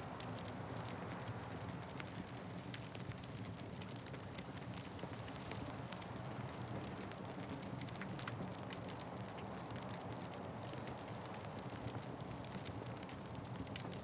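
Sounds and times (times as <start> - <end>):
wood fire crackling and popping: 0.2 - 14.0.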